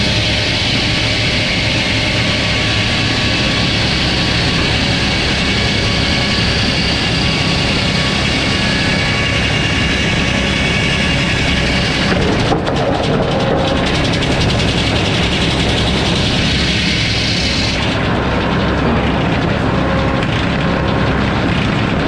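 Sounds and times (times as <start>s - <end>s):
sawmill engine and saw din: 0.0s - 22.0s.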